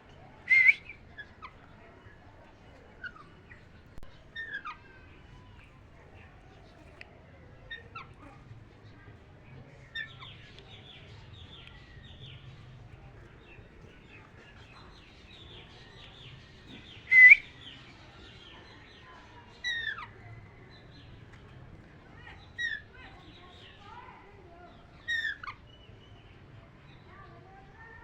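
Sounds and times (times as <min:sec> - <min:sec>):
parrot chirping and chattering: 0:03.0 - 0:04.9, 0:19.5 - 0:20.2, 0:22.2 - 0:23.6, 0:24.9 - 0:25.6.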